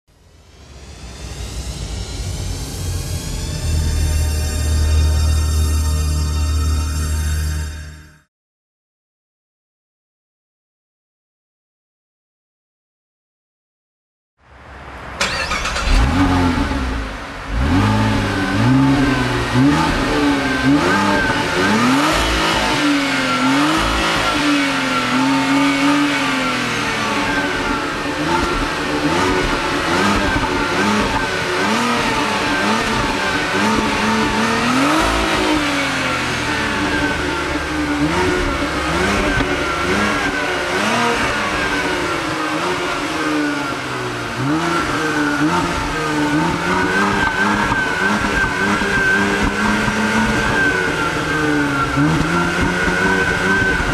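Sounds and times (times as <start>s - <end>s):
car engine revving: 14.6s - 53.9s.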